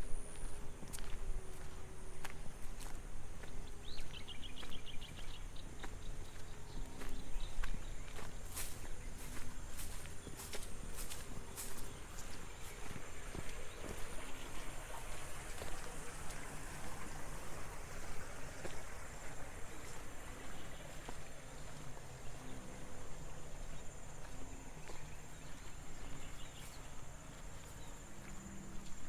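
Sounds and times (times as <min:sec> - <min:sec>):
water rushing in a channel: 0:08.5 - 0:24.4.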